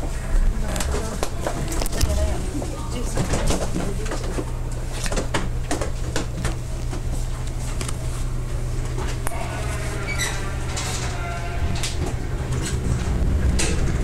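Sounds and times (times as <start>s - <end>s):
train interior hum: 0.0s - 14.0s
steady pitched tones: 8.2s - 14.0s.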